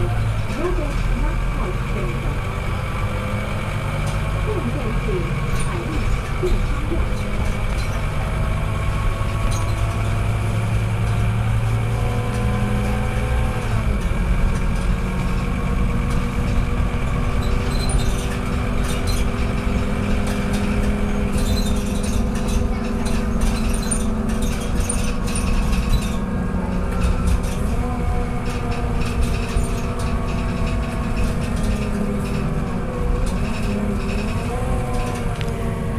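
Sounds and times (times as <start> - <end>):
bus engine drone with whine: 0.0 - 35.9.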